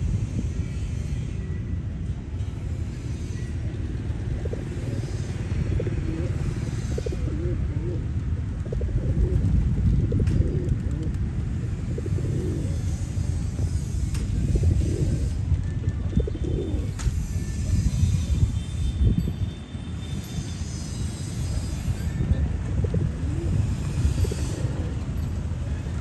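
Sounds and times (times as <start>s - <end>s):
steady low rumble: 3.6s - 19.2s, 21.6s - 26.0s
pigeons cooing: 4.2s - 13.5s, 14.3s - 17.7s, 22.0s - 25.9s.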